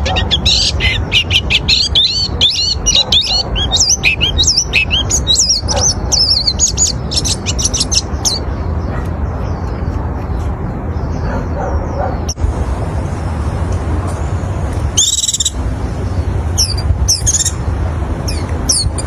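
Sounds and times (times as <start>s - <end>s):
bird twittering song: 0.0s - 12.4s, 14.2s - 19.0s
steady low hum: 11.7s - 19.0s.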